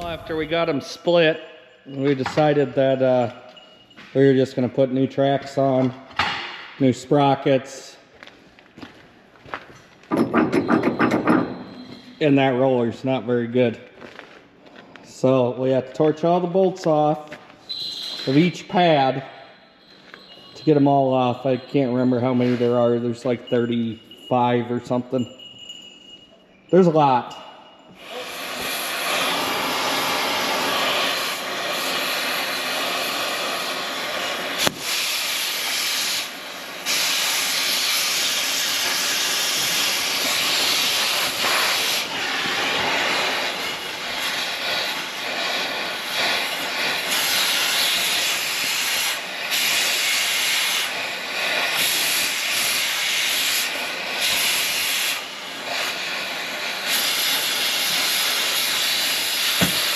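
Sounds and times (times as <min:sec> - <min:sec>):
cutting torch hissing: 0:00.0 - 0:01.0, 0:27.9 - 0:59.9.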